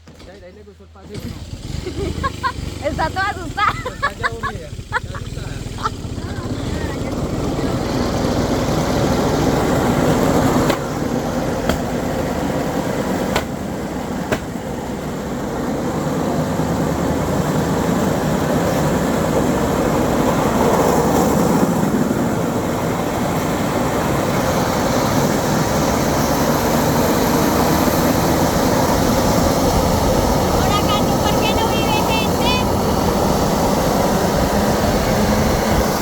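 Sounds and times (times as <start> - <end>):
vehicle ride rumbling: 0.0 - 36.0
sharp clicks or knocks: 13.3 - 13.6, 14.3 - 14.6.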